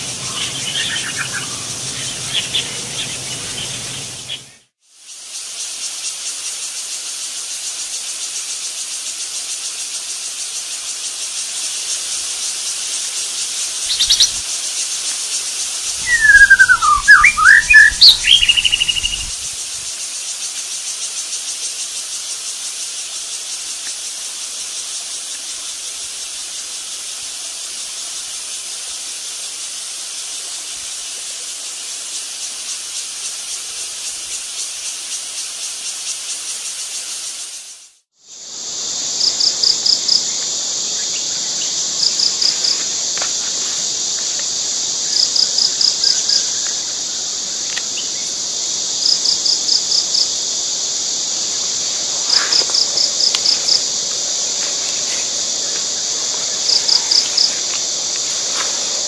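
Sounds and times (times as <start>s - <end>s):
rapid sweeping bird calls: 0.0s - 4.7s, 13.2s - 19.6s
insect chorus buzzing: 0.0s - 59.0s.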